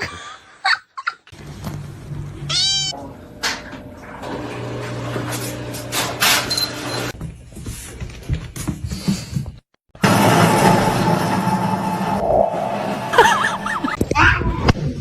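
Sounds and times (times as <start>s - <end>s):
cat meowing: 2.5s - 3.0s.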